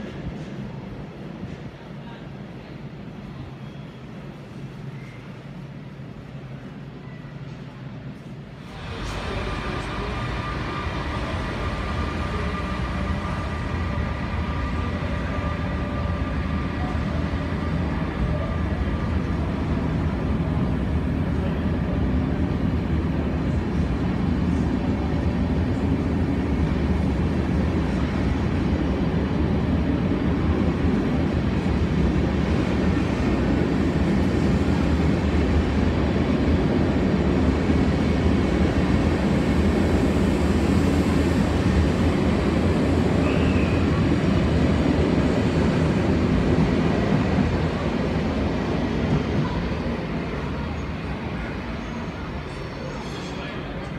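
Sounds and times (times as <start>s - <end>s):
train wheels rumbling on rails: 0.0s - 53.9s
locomotive whining tones: 8.7s - 20.8s.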